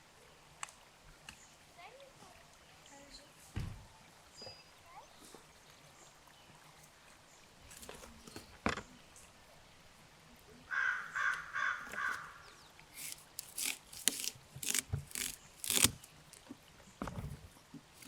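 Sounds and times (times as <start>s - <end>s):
bird calling: 10.7s - 13.2s.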